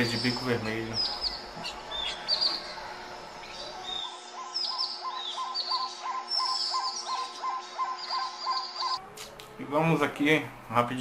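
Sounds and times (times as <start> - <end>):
downward sweeping bird chirps: 3.4 - 9.0.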